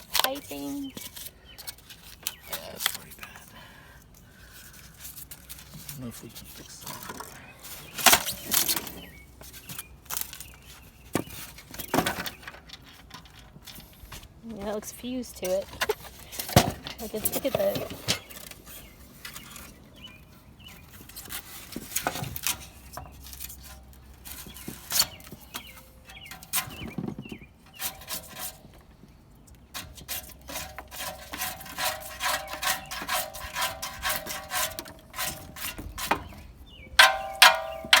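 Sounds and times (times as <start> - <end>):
metal clicks and knocks: 37.0 - 38.0.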